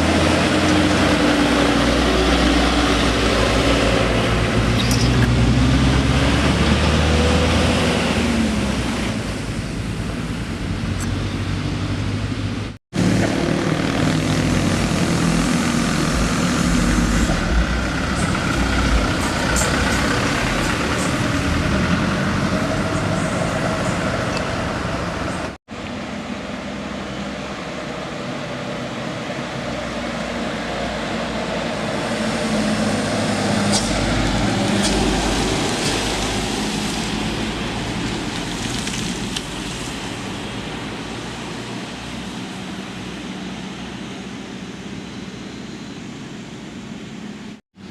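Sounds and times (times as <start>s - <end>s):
heavy vehicle engines passing: 0.0s - 47.9s.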